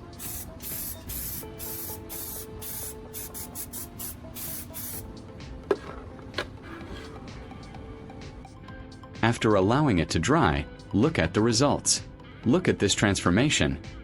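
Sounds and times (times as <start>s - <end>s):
spray paint hissing bursts: 0.0s - 5.1s.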